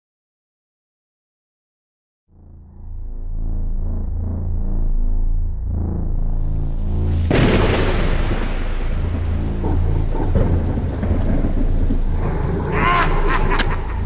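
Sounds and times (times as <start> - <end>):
low steady drone: 2.3 - 14.0
thunderclap rolling: 7.0 - 14.0
rain-like hiss: 7.3 - 14.0.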